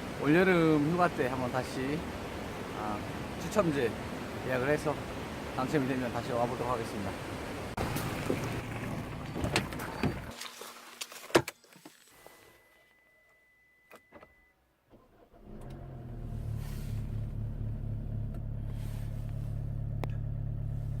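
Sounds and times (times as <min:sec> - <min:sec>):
car engine starting and idling: 0:07.8 - 0:10.3, 0:14.9 - 0:21.0.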